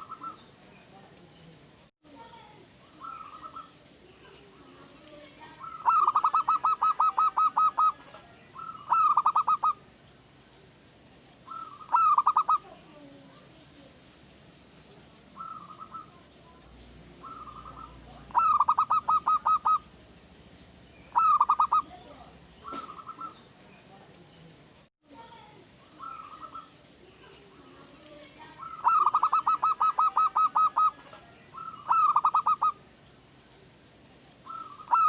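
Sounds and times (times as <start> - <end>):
dove cooing: 0.0 - 0.5, 2.8 - 3.8, 4.4 - 9.9, 11.4 - 13.1, 15.4 - 16.3, 17.1 - 20.0, 21.1 - 23.5, 25.8 - 32.8, 34.4 - 35.0.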